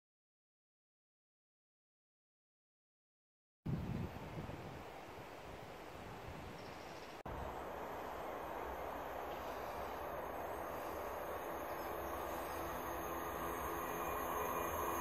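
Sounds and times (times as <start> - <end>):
distant train rumble: 7.3 - 15.0.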